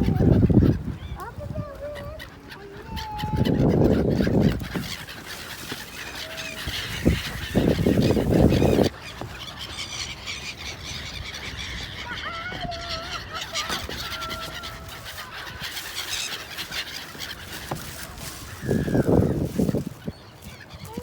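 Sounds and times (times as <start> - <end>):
gulls calling: 0.0 - 21.0.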